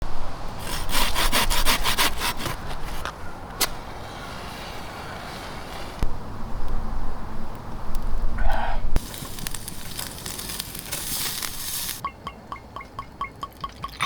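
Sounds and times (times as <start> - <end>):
hand saw cutting wood: 0.6 - 6.0.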